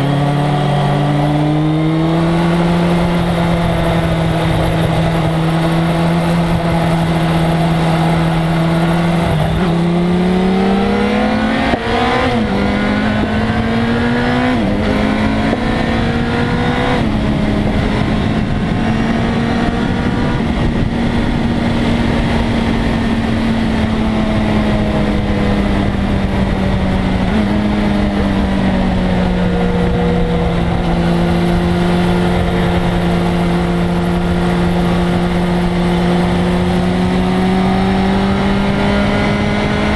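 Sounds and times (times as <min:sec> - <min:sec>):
motorcycle engine revving and shifting: 0:00.0 - 0:39.9.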